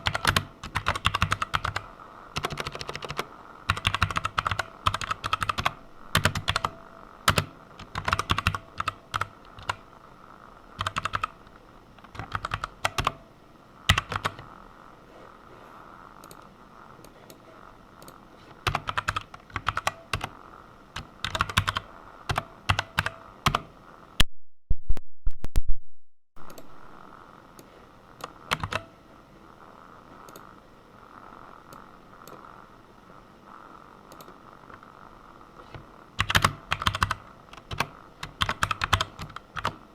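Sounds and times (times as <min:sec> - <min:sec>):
computer keyboard typing: 0:00.0 - 0:09.9, 0:10.7 - 0:11.4, 0:12.0 - 0:13.2, 0:13.9 - 0:14.5, 0:18.0 - 0:20.4, 0:21.0 - 0:23.7, 0:28.2 - 0:28.9, 0:35.7 - 0:39.8
faint steady hum: 0:00.0 - 0:39.9.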